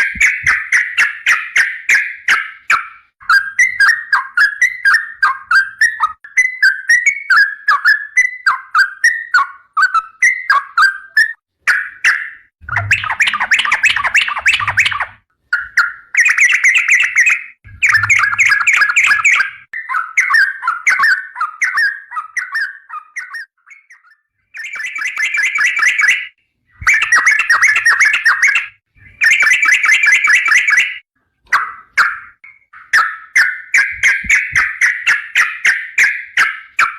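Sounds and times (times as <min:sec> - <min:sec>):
bulbul rolling chattering song: 0:11.7 - 0:24.0, 0:24.6 - 0:36.9.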